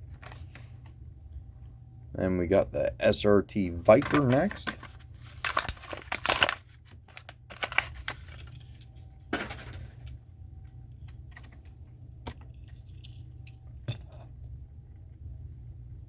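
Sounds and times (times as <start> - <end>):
low steady hum: 0.0 - 16.0
plastic blister pack crackling: 3.8 - 10.2
card tearing: 3.9 - 8.6.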